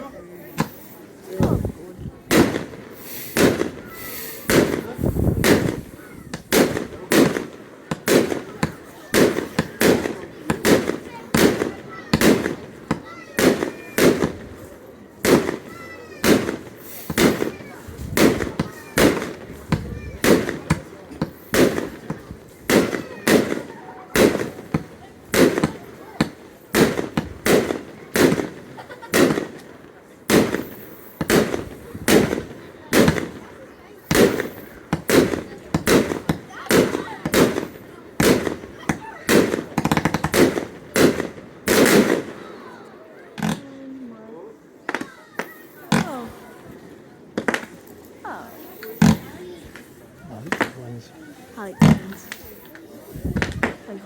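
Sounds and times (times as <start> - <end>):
firework shells bursting: 2.3 - 14.6, 15.2 - 29.7, 34.1 - 42.4, 46.8 - 49.9.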